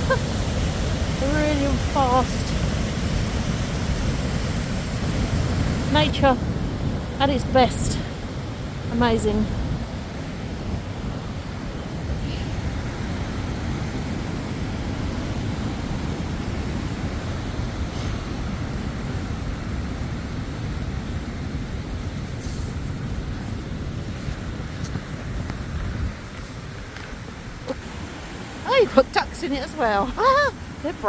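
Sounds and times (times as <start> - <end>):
waterfall rushing: 0.0 - 9.3, 27.5 - 31.0.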